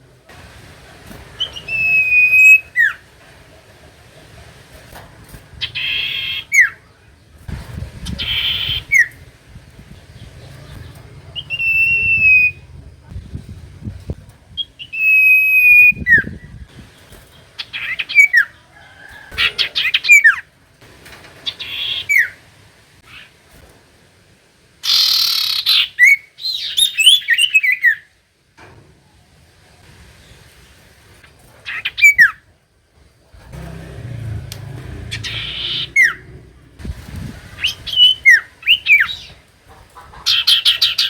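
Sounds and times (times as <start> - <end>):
bird whistling song: 1.4 - 3.0, 8.1 - 9.2, 11.3 - 12.7, 14.6 - 16.6, 24.8 - 28.1, 35.0 - 36.3, 37.6 - 39.4
bird buzzy chattering notes: 33.4 - 39.3.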